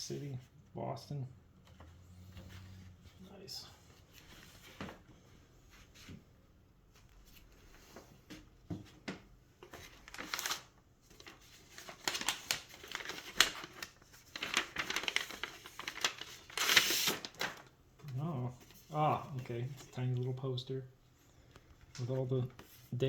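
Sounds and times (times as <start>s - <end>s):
packaging crinkling and rustling: 9.6s - 19.0s.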